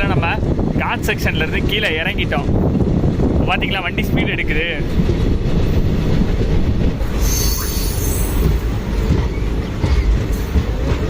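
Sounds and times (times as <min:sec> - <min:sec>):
train wheels rumbling on track: 0:00.0 - 0:11.0
high wheel squeal: 0:07.1 - 0:08.6.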